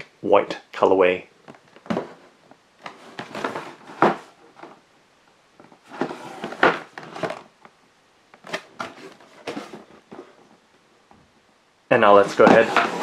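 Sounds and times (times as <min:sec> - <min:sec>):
cardboard box rustling and scraping: 0:02.9 - 0:04.8, 0:05.8 - 0:07.5, 0:08.4 - 0:10.5, 0:12.3 - 0:13.0.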